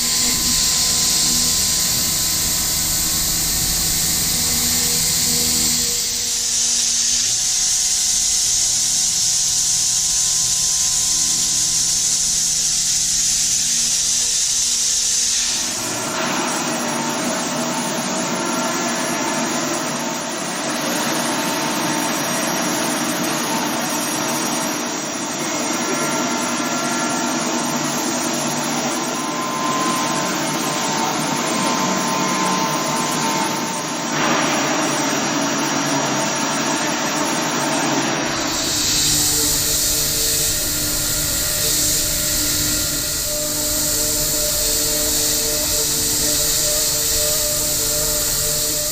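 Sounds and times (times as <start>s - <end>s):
machining center hiss: 0.0s - 9.2s, 38.2s - 48.9s
milling noise with whines: 38.2s - 48.9s.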